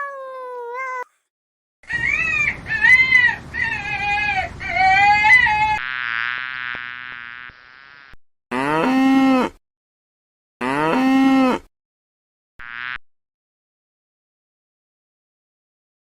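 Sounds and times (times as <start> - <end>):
farm animal calling: 1.9 - 5.8.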